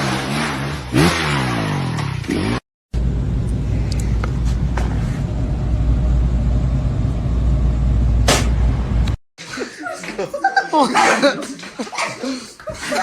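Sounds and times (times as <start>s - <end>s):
vehicle engine rumbling: 2.0s - 9.2s.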